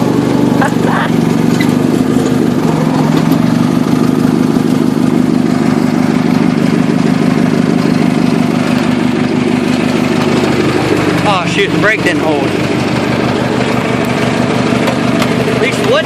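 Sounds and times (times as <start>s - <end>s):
garden tractor engine running: 0.0s - 16.0s.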